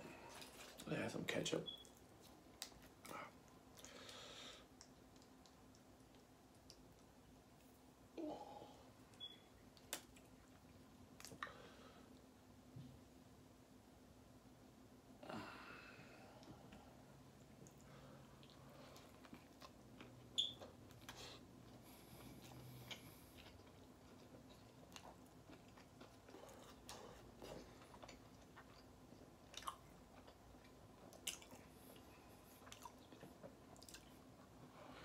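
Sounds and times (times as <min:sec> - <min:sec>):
chewing with wet mouth clicks: 0:04.7 - 0:07.8, 0:09.1 - 0:11.5, 0:17.4 - 0:21.8, 0:22.4 - 0:34.5.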